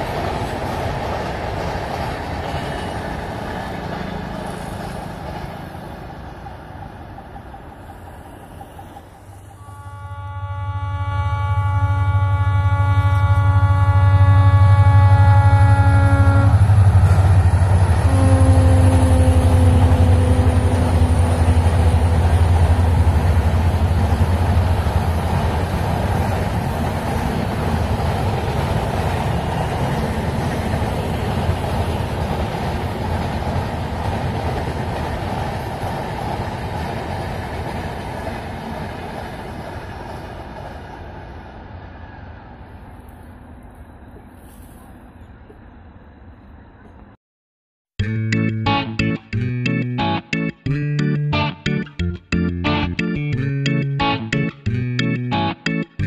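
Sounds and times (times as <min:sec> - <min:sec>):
train wheels rumbling on rails: 0:00.0 - 0:09.7, 0:12.4 - 0:44.8
train horn blasts: 0:09.5 - 0:24.5.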